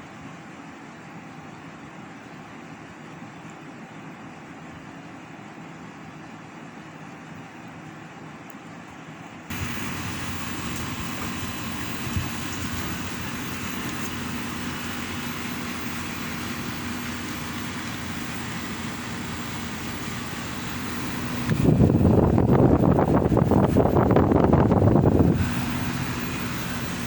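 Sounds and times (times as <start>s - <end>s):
low hum: 9.5s - 27.0s
steady mechanical running noise: 9.5s - 27.0s.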